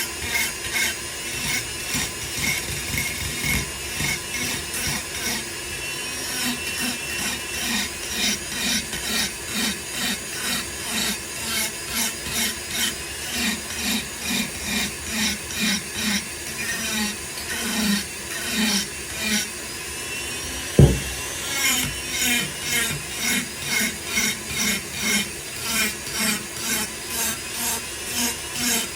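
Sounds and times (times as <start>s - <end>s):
rotary tool motor whining: 0.0s - 28.9s.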